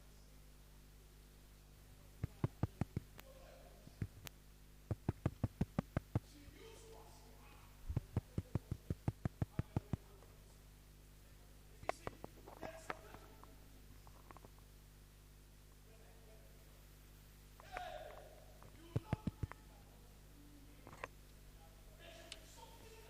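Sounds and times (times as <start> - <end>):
low electrical hum: 0.0 - 23.0
sharp clicks: 2.2 - 3.3, 4.0 - 6.3, 8.0 - 10.1, 18.6 - 19.6.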